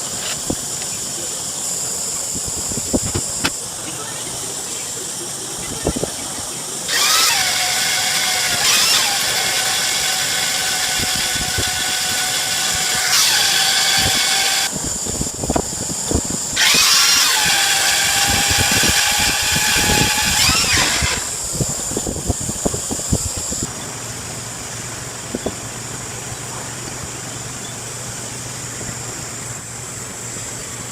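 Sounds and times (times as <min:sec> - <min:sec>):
power tool whining: 0:00.0 - 0:23.7.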